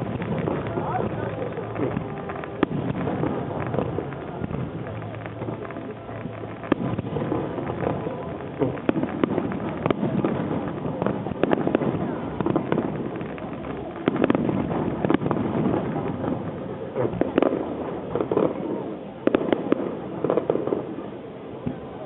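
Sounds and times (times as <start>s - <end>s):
low rumble of bursts: 0.0s - 19.2s
fireworks bangs and crackling: 0.0s - 22.0s
people's voices: 0.0s - 22.0s.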